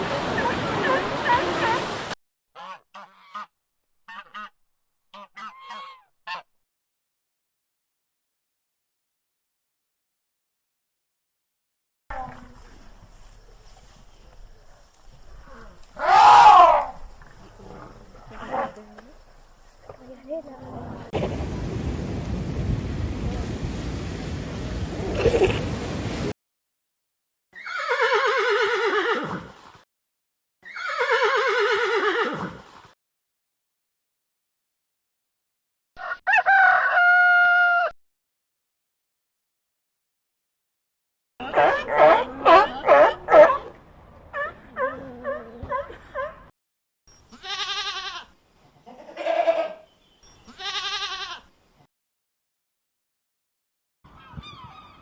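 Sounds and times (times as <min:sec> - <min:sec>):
horse whinnying: 0:16.0 - 0:17.0, 0:27.6 - 0:29.6, 0:30.6 - 0:32.7
goat bleating: 0:47.3 - 0:51.5.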